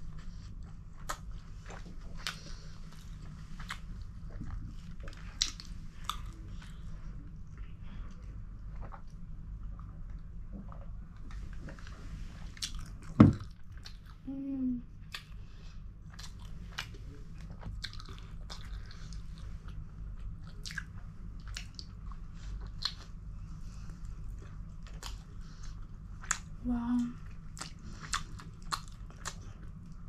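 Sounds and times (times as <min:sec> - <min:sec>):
person chewing with wet clicks: 0:00.0 - 0:12.0, 0:12.6 - 0:14.3, 0:14.9 - 0:23.2, 0:23.8 - 0:30.0
loud thump: 0:13.2 - 0:13.4.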